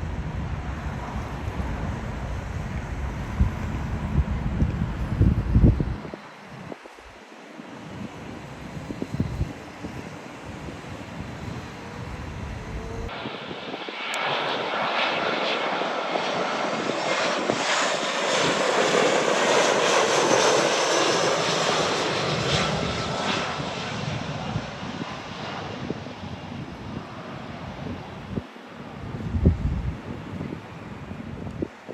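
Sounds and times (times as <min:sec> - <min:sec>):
jet engines passing: 0:00.0 - 0:31.9.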